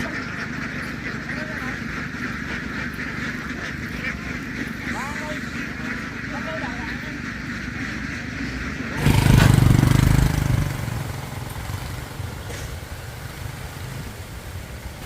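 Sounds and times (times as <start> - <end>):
engine starting and running: 9.0 - 15.0.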